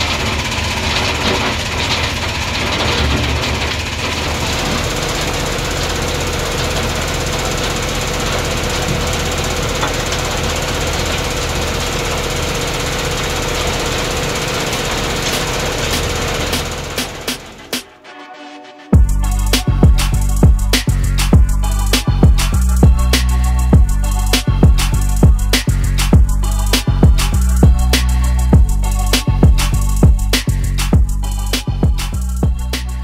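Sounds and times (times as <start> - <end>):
engine hum: 0.0 - 17.9, 19.0 - 33.0
machine rattling: 0.0 - 18.0.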